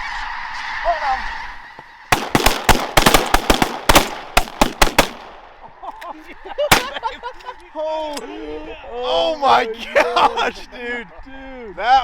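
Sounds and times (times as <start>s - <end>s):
geese calling: 0.0s - 12.0s
shotgun fire: 2.1s - 5.5s, 6.7s - 7.0s.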